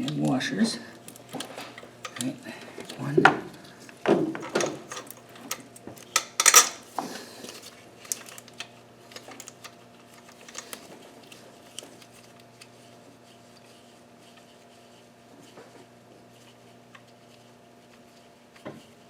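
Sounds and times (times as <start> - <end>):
hardware clattering: 4.1 - 6.8.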